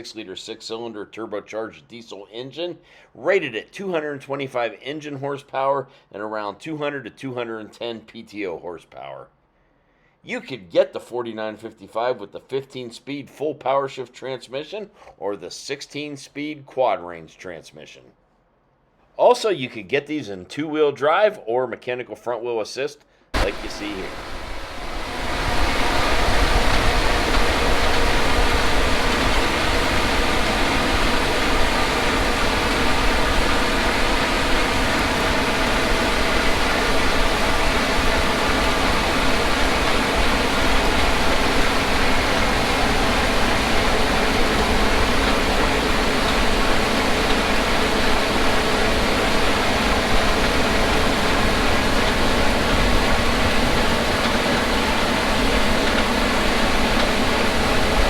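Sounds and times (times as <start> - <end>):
low rumble: 23.4 - 48.2
diesel engine drone: 23.4 - 58.0
hiss: 23.4 - 58.0
steady tonal hum: 23.4 - 58.0.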